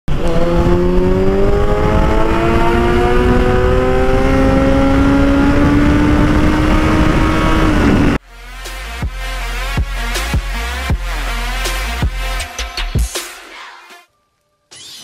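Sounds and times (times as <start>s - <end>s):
motorcycle accelerating loud exhaust: 0.1s - 8.2s.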